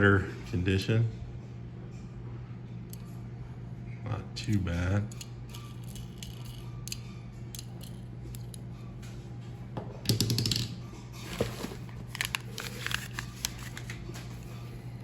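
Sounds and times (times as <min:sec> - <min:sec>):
steady low hum: 0:00.0 - 0:15.0
packaging rustling: 0:11.2 - 0:14.4.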